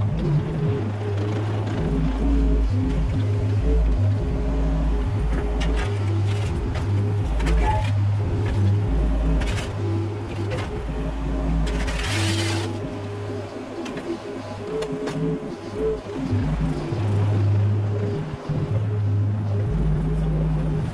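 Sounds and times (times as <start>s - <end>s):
excavator diesel engine: 1.7s - 13.3s.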